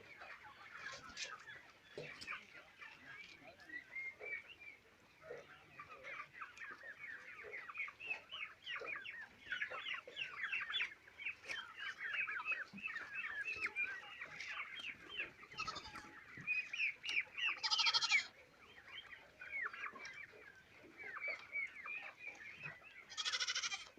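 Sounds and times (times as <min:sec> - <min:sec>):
chickens cheeping and clucking: 0:00.0 - 0:23.9
harsh chicken calls: 0:15.2 - 0:16.2, 0:17.5 - 0:18.4, 0:23.0 - 0:23.9.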